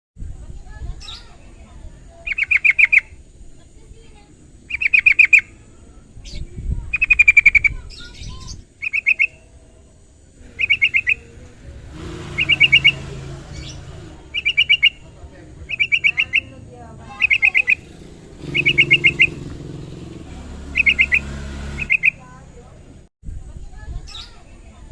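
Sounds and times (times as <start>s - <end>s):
bulbul calling in rapid bursts: 2.2s - 3.2s, 4.6s - 5.6s, 6.9s - 9.5s, 10.4s - 22.6s.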